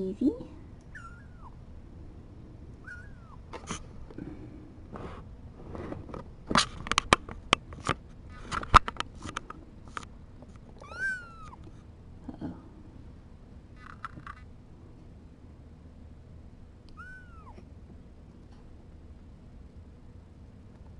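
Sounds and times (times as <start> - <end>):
kittens mewing: 0.9 - 1.6, 2.8 - 3.6, 10.8 - 11.7, 17.0 - 17.7
sharp clicks and knocks: 6.0 - 10.7.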